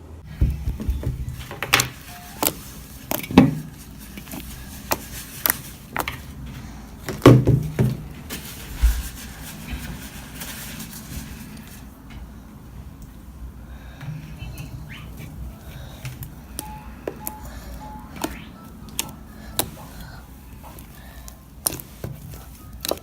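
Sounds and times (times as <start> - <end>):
slime squishing by hand: 0.2 - 12.0, 13.8 - 23.0.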